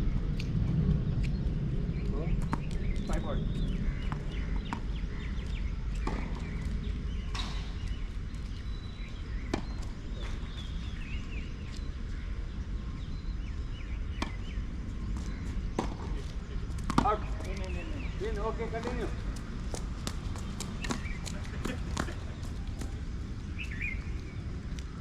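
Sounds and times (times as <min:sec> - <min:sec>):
low rumble: 0:00.0 - 0:09.5
tennis balls hit by rackets: 0:04.0 - 0:08.0, 0:14.2 - 0:14.5, 0:15.1 - 0:23.1.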